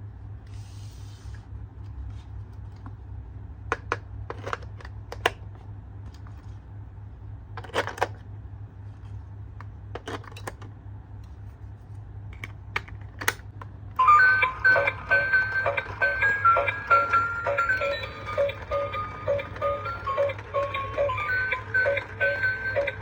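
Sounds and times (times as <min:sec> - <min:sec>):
plinky electronic melody: 0:14.0 - 0:23.0.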